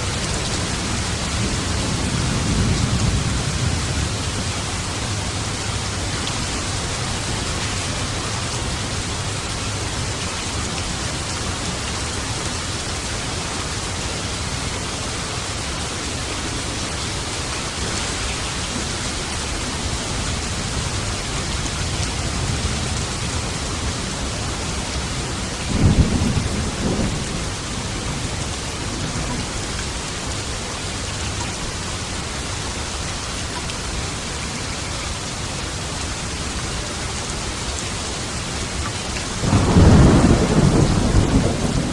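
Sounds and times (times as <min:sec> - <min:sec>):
heavy rain: 0:00.0 - 0:41.9
thunderclap: 0:39.4 - 0:41.9.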